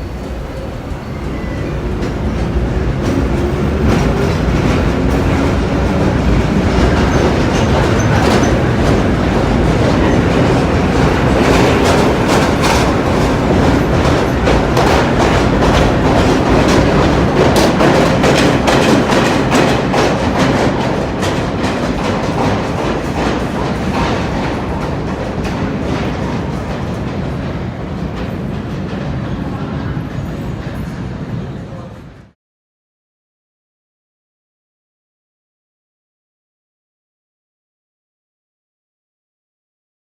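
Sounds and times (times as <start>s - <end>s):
subway train rumble: 0.0s - 32.4s
train wheels clacking over rail joints: 1.9s - 31.0s.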